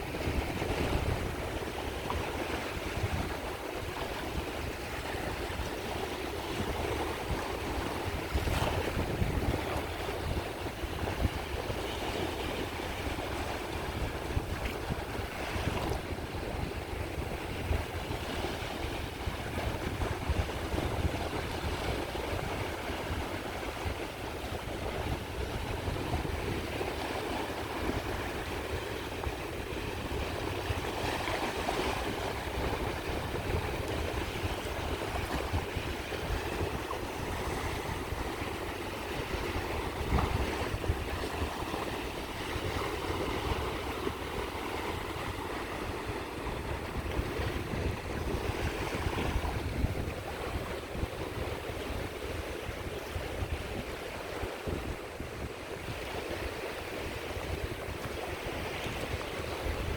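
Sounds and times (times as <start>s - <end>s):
sea waves washing onto shore: 0.0s - 59.9s.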